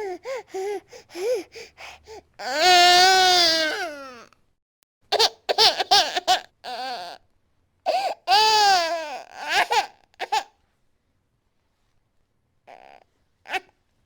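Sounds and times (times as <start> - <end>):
baby crying and sobbing: 0.0 - 4.3, 5.2 - 7.2, 7.9 - 10.5.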